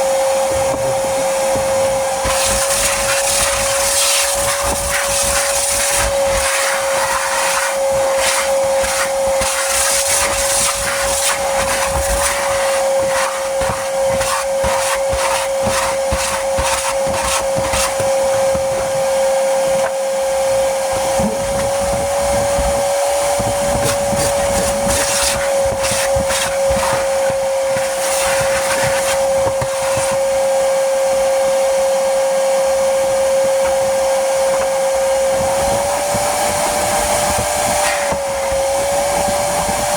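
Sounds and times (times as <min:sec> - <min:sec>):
vacuum cleaner whining: 0:00.0 - 0:39.9.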